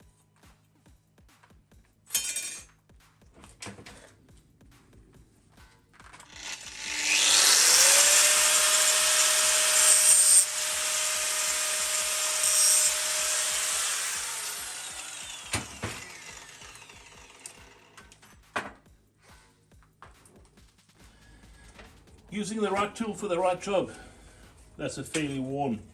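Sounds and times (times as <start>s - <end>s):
angle grinder cutting steel: 6.2s - 18.2s.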